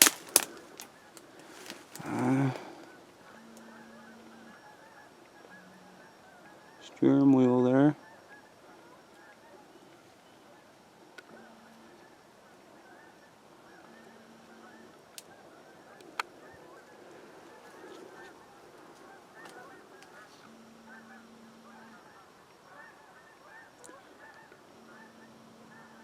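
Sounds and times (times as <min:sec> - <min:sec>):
sharp snaps: 0:00.0 - 0:00.9
birds honking: 0:00.0 - 0:26.0.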